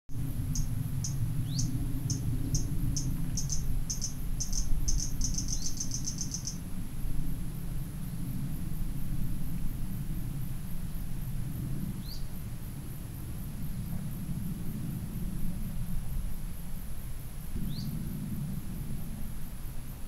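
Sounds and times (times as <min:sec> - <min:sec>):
low outdoor rumble: 0:00.1 - 0:20.0
small bird chirping and trilling: 0:00.5 - 0:06.6.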